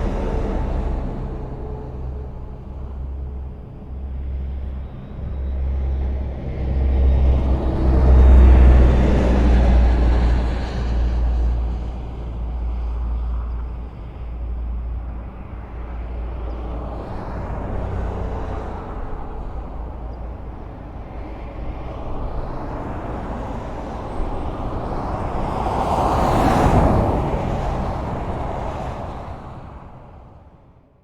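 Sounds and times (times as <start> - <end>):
vehicle passing loudly: 0.0 - 5.0
highway traffic rumble: 0.0 - 31.0.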